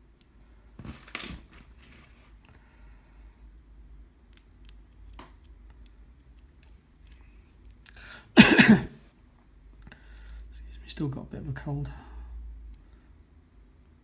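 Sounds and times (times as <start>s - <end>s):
man coughing: 8.4s - 9.0s.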